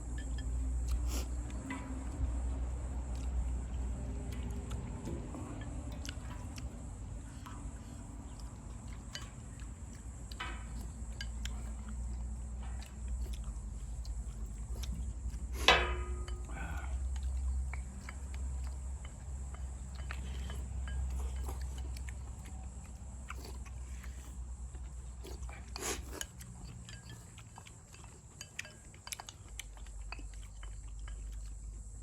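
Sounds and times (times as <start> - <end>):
steady low rumble: 0.0 - 28.5
quiet chewing: 0.0 - 32.0
utensil clinking against dish: 5.0 - 13.4, 14.4 - 17.1, 17.7 - 22.6, 25.2 - 31.5.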